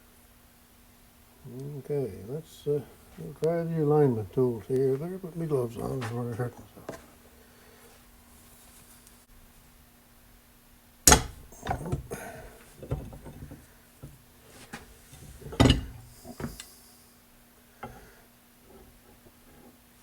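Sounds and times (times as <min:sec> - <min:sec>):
metal hand tools clanking: 0:11.1 - 0:13.6, 0:15.1 - 0:16.7.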